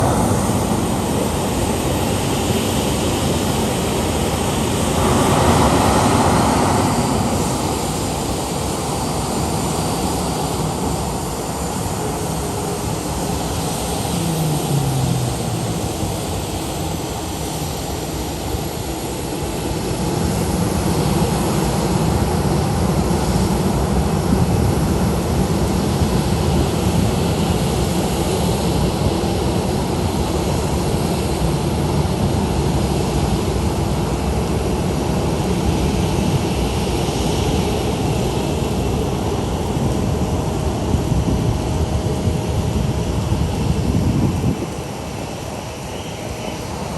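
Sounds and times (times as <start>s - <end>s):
heavy rain hissing: 0.0s - 19.9s, 33.5s - 46.9s
airliner engines running: 0.0s - 46.9s.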